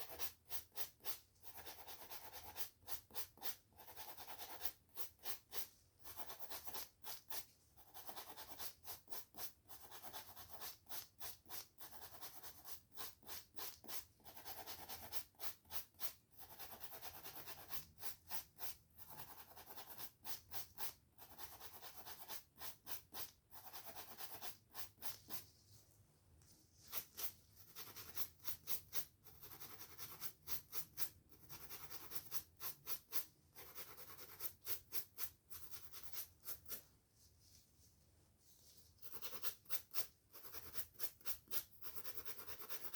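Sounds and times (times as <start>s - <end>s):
brush scratching hair and scalp: 26.5s - 31.2s.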